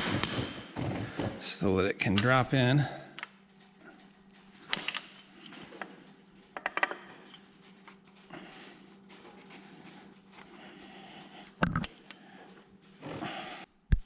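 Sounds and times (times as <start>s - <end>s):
metallic clinks: 2.0s - 8.3s, 9.0s - 13.0s.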